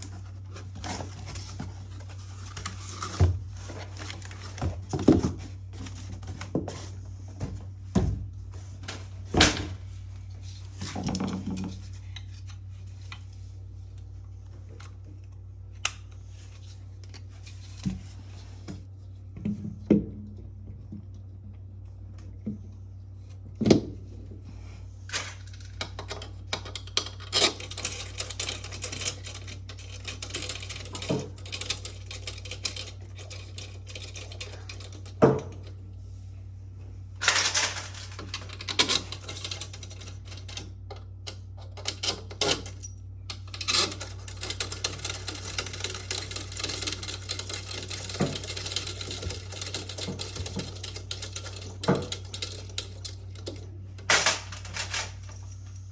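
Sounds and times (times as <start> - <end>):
metallic clicking and clinking: 41.8 - 55.9.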